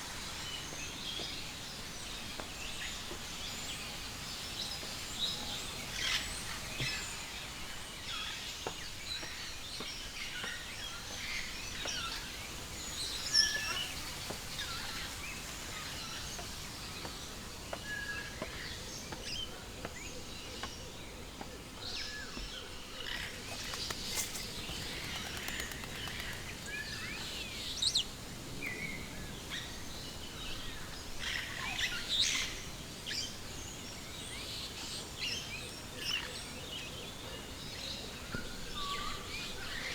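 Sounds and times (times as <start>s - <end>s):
birds chirping and calling: 23.0s - 28.1s.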